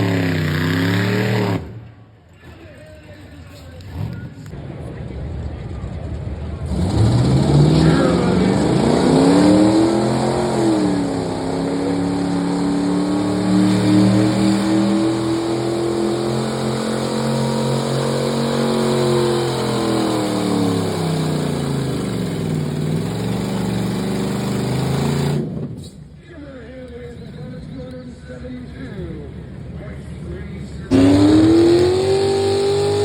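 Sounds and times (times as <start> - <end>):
truck engine revving hard: 0.0 - 1.8, 6.6 - 25.8, 30.9 - 33.0.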